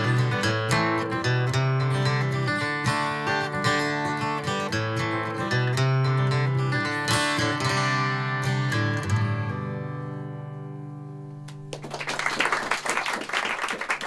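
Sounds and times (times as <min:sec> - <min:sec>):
acoustic guitar strumming: 0:00.0 - 0:11.7
applause: 0:11.4 - 0:14.0.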